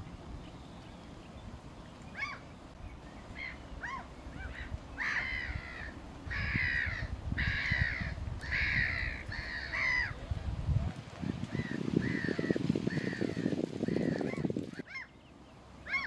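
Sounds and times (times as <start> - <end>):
bird calling: 0.0 - 10.3, 11.5 - 16.0.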